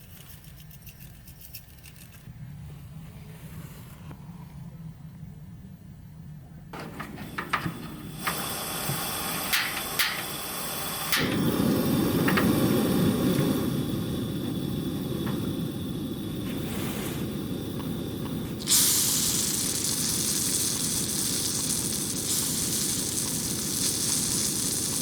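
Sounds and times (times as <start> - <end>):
steady hiss: 6.5 - 25.0
sharp clicks and knocks: 6.8 - 10.3.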